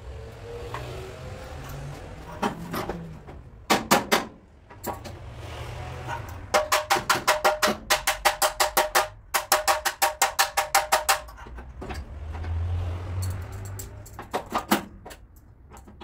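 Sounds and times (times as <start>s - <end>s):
hammer tapping sheet metal: 3.7s - 5.0s, 6.2s - 11.5s.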